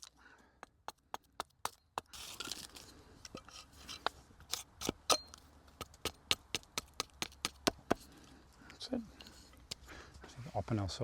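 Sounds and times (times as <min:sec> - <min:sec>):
axe chopping wood: 0:04.5 - 0:08.0.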